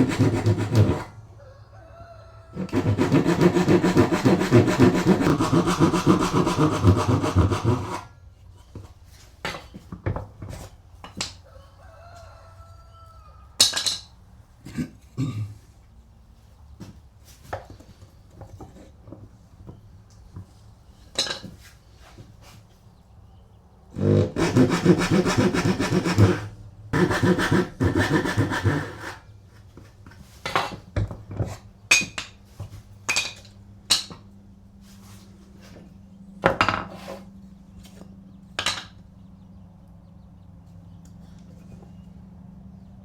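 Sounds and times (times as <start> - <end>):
hand tool scraping wood: 0.0 - 1.1, 2.6 - 8.1, 24.0 - 29.7.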